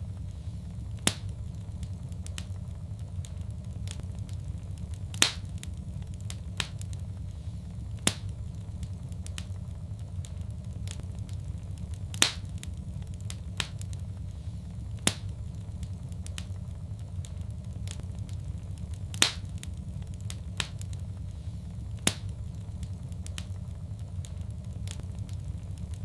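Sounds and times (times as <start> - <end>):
low rumble of burning: 0.0 - 26.0
wood fire crackling and popping: 0.0 - 26.0.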